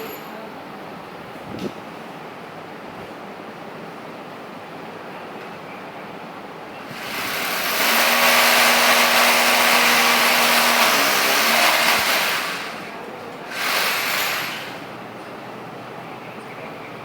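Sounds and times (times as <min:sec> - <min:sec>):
motor-driven machine rushing and humming: 0:06.9 - 0:15.0.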